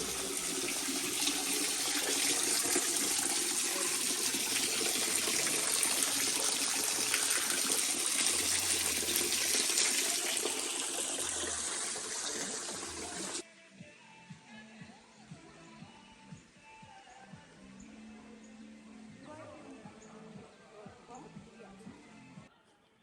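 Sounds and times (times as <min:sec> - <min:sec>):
running water rushing: 0:00.0 - 0:13.4.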